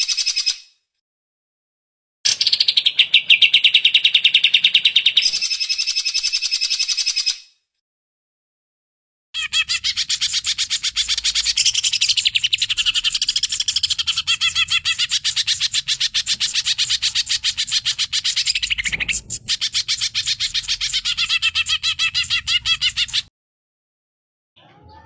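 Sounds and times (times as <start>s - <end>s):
bird singing rapid chattering notes: 9.4s - 23.3s.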